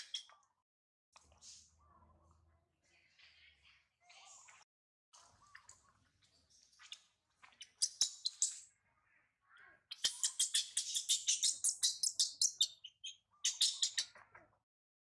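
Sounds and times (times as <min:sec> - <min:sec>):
small bird chirping: 0:00.0 - 0:00.5, 0:05.2 - 0:14.5.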